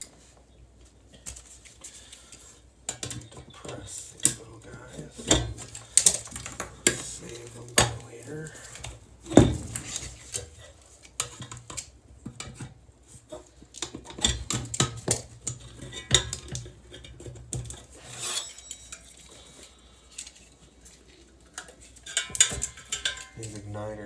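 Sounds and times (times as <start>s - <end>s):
metal parts clinking: 18.0s - 20.6s, 21.8s - 23.6s.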